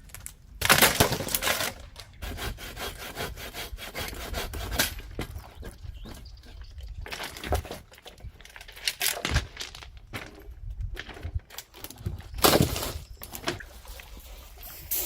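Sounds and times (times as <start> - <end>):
knocks and cracks: 0.0 - 2.2, 7.0 - 13.8
rustling: 12.4 - 15.0.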